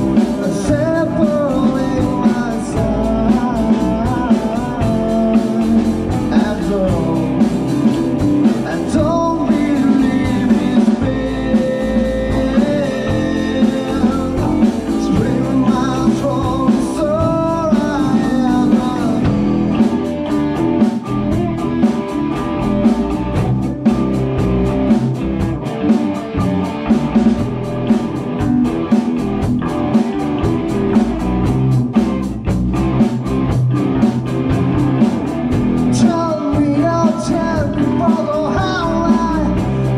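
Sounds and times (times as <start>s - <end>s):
person singing: 0.0s - 20.4s, 35.9s - 39.9s
drum kit beat: 0.0s - 39.9s
electric guitars: 0.0s - 39.9s
rock band playing live: 0.0s - 39.9s.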